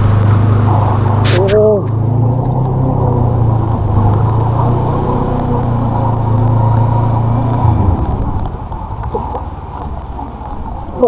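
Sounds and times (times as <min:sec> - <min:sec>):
motorcycle engine running: 0:00.0 - 0:11.0
water splashing: 0:00.0 - 0:11.0
rain hiss: 0:02.7 - 0:11.0.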